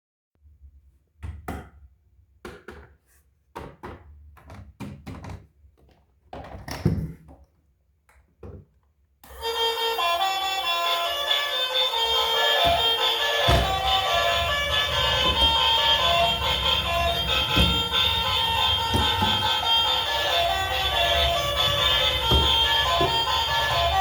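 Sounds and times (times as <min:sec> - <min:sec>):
melodic music: 0:09.4 - 0:24.0
irregular knocks and thuds: 0:12.4 - 0:24.0.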